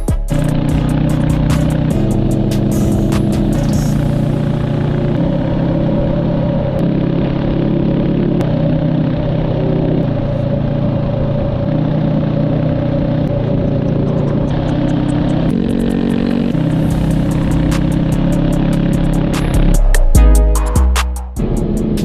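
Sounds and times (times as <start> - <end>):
motorcycle engine running: 0.0 - 22.0
fast regular ticking: 13.3 - 20.1.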